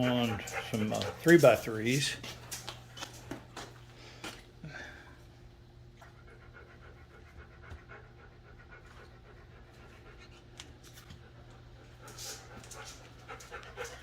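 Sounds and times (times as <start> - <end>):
dog panting: 0.0 - 3.2, 5.9 - 14.0
low electrical hum: 0.0 - 14.0.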